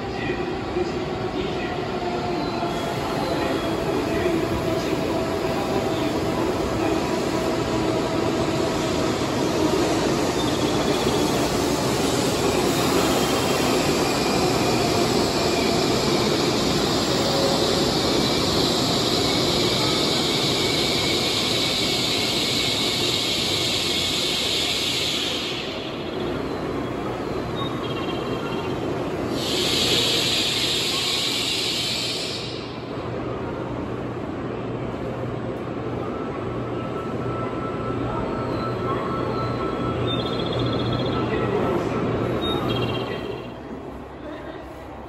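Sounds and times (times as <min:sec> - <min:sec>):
low train rumble: 0:00.0 - 0:45.0
train equipment hiss: 0:05.5 - 0:26.2, 0:29.1 - 0:33.0.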